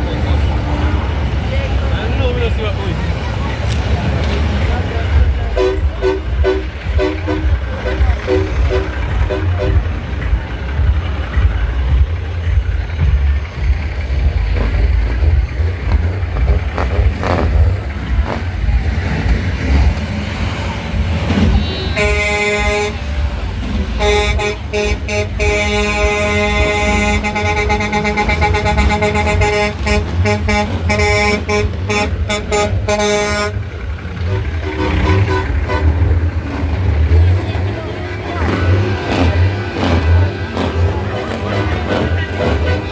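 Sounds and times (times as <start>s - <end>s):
truck engine rumbling: 0.0s - 42.9s
truck horn short toots: 5.5s - 9.9s, 21.3s - 23.2s, 23.9s - 36.1s, 40.6s - 42.9s.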